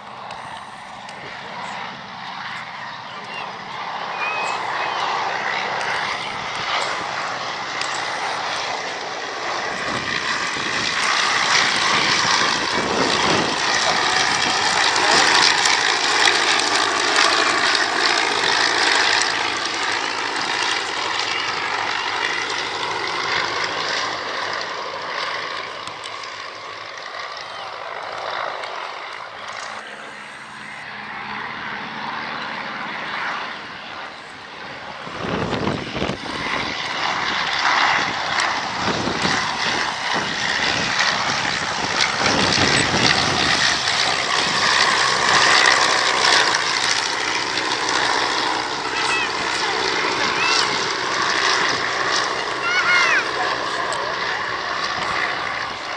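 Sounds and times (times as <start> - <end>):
propeller aircraft flying past: 0.0 - 55.9
wind rumble on microphone: 9.6 - 15.5, 34.9 - 45.6.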